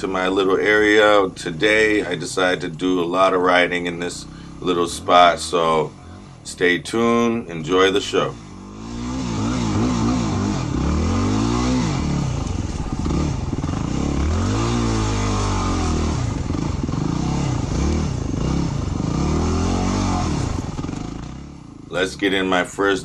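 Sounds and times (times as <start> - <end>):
motorbike engine revving: 0.0 - 23.0
clatter: 20.2 - 21.8.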